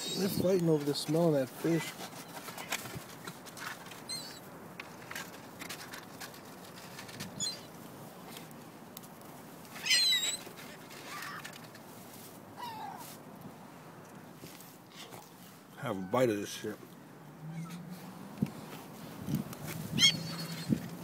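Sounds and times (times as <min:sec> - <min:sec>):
seagulls squealing: 0:00.0 - 0:00.4, 0:09.8 - 0:11.6, 0:17.4 - 0:17.9, 0:19.9 - 0:20.9.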